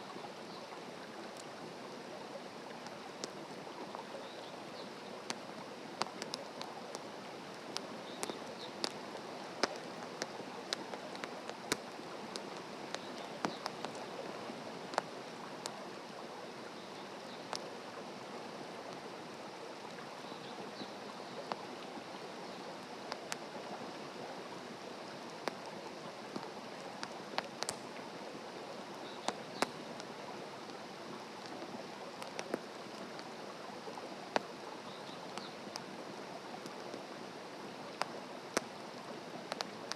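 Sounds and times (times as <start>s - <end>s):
campfire crackling and popping: 2.7s - 3.4s, 5.1s - 15.8s, 17.3s - 17.8s, 21.5s - 21.7s, 22.9s - 23.5s, 25.2s - 28.0s, 28.8s - 33.3s, 34.2s - 37.2s, 37.9s - 39.9s.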